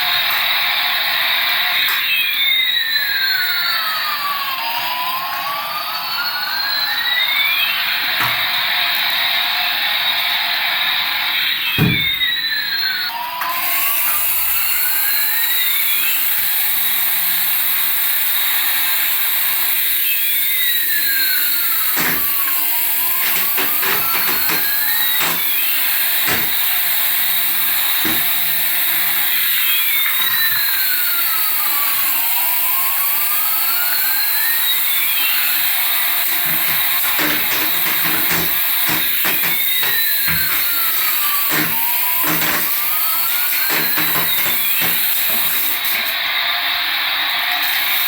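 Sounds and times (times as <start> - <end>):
toy electric motor whir: 0.0 - 48.0
clicks: 21.8 - 30.9, 35.0 - 46.2.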